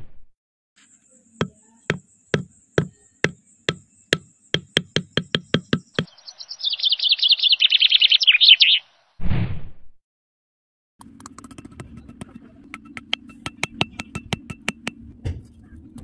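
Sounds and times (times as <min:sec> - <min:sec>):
high chirps: 0:01.7 - 0:08.9.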